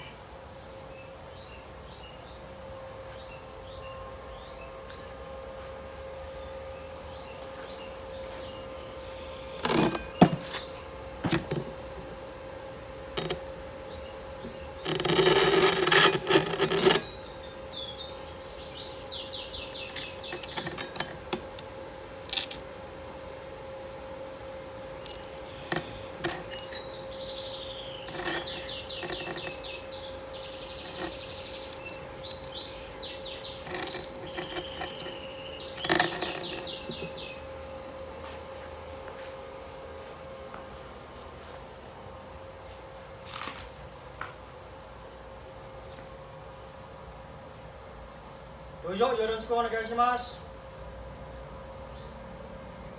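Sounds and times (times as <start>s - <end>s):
steady hum: 2.6s - 43.2s
noisy clatter: 13.2s - 13.5s, 14.3s - 17.3s, 25.0s - 37.2s
small birds chirping: 17.0s - 20.7s, 25.2s - 37.5s.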